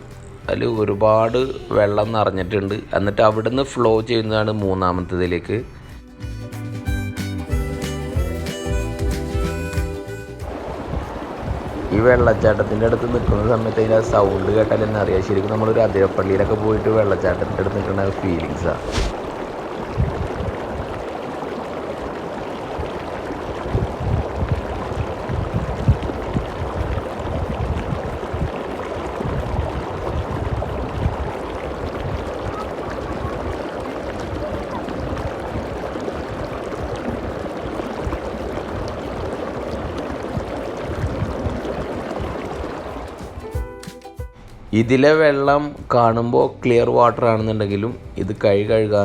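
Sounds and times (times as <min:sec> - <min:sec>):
water rushing down spillway: 0:07.7 - 0:43.6
low irregular rumbles: 0:10.5 - 0:20.7.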